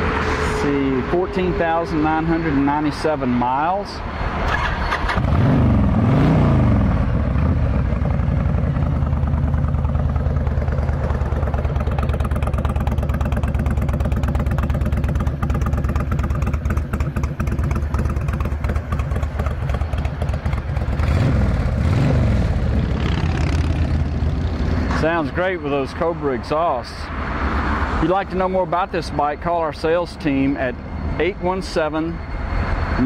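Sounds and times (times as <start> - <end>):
motorcycle engine revving: 4.4 - 25.4
motorcycle engine idling: 7.0 - 21.8.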